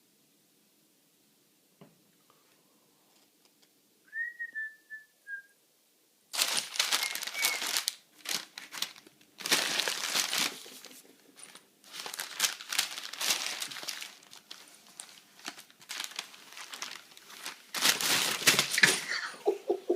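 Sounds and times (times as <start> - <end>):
newspaper pages rustling: 6.4 - 19.1.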